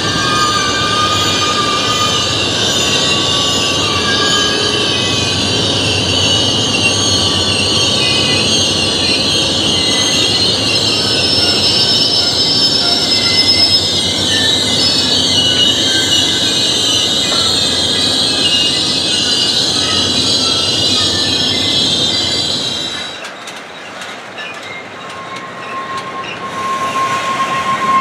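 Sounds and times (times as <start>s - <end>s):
high-pitched wheel squeal: 0.0s - 28.0s
train wheels rumbling on rails: 0.0s - 28.0s.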